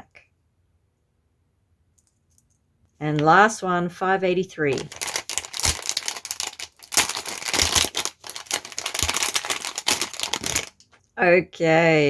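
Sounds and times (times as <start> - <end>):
packaging crinkling and tearing: 4.7 - 10.9.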